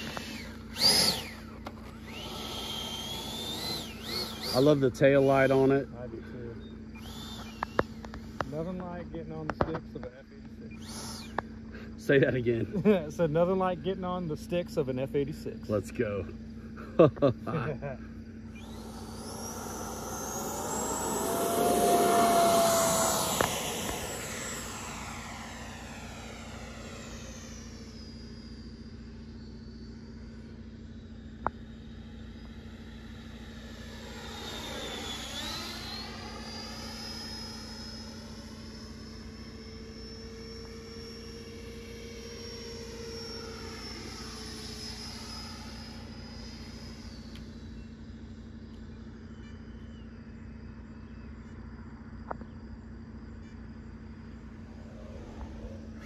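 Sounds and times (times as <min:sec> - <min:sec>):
electric jet whining in flight: 0:00.0 - 0:56.0
steady low hum: 0:00.0 - 0:56.0.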